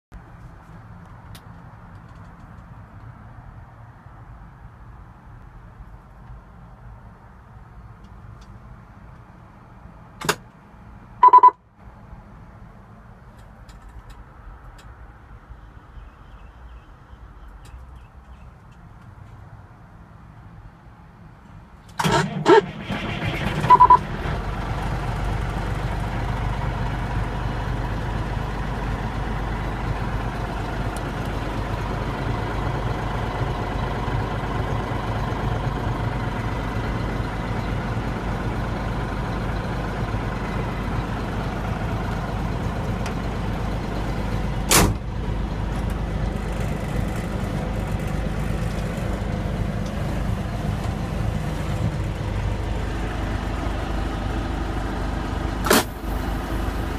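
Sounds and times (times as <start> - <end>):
short beep: 11.2 - 11.6, 23.7 - 24.0
diesel truck engine idling: 22.0 - 56.9.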